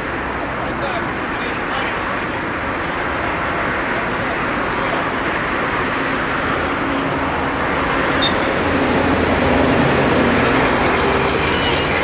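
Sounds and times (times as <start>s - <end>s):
continuous rush of noise: 0.0s - 12.0s.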